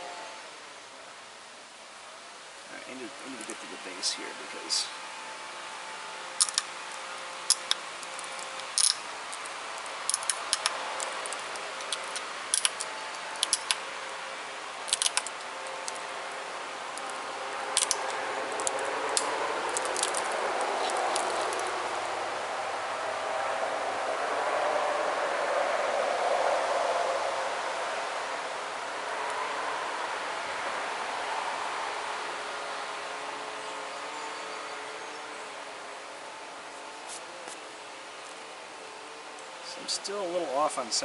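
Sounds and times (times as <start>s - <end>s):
steady background noise: 0.0s - 41.0s
stone flakes clicking off: 14.9s - 16.0s, 17.8s - 21.7s.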